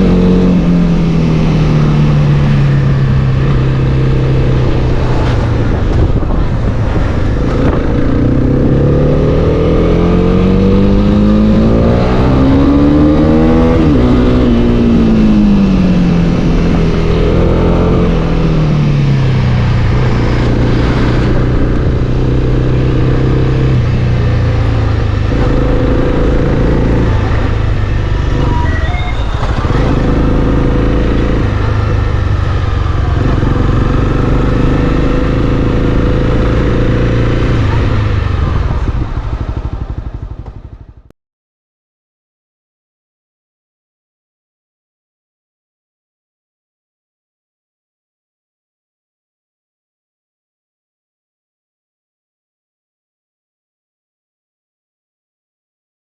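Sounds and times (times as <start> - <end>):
motorcycle engine revving: 0.0 - 41.1.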